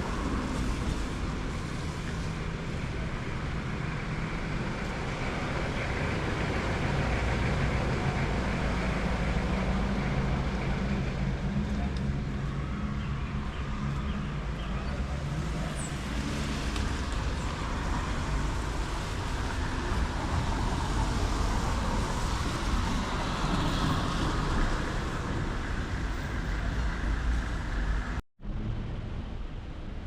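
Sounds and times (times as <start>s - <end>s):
traffic rumble: 0.0s - 30.0s.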